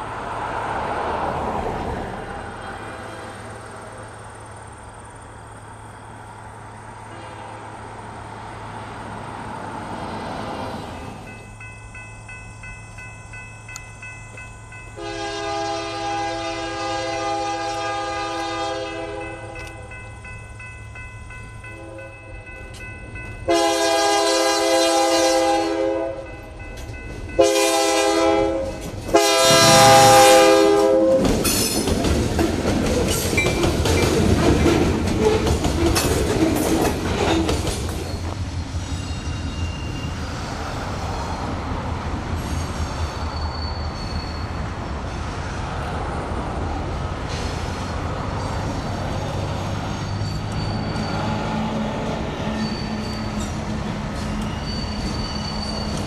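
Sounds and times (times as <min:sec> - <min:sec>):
locomotive engine: 0:00.0 - 0:56.0
locomotive air horn blasts: 0:07.1 - 0:07.8, 0:15.0 - 0:19.9, 0:21.8 - 0:22.3, 0:23.4 - 0:26.3, 0:27.4 - 0:31.4
train wheels rolling: 0:08.6 - 0:25.5, 0:26.2 - 0:56.0.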